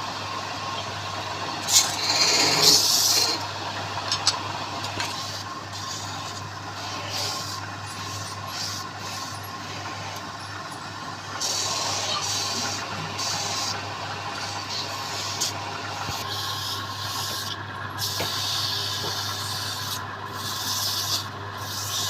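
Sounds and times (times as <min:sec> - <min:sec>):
wood lathe humming: 0:01.4 - 0:03.8, 0:04.6 - 0:22.0
turning tool scraping wood: 0:01.7 - 0:03.4.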